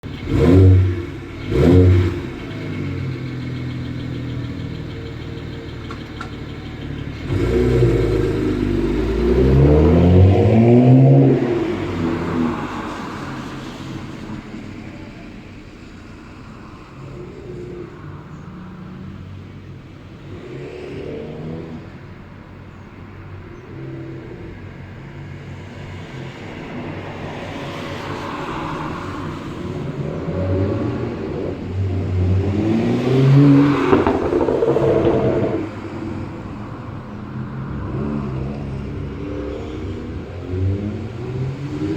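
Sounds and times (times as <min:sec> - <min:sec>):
car engine revving exhaust: 0:00.0 - 0:41.9.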